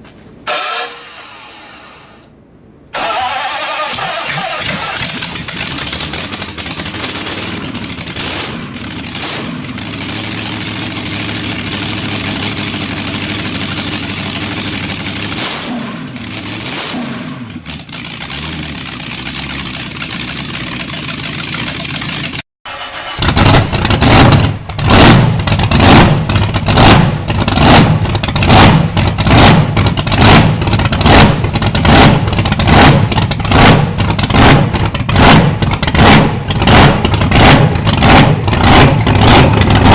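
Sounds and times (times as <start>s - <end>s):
large engine revving: 3.0s - 39.9s
large engine chugging slowly: 5.2s - 15.4s, 17.6s - 22.4s, 25.4s - 39.9s.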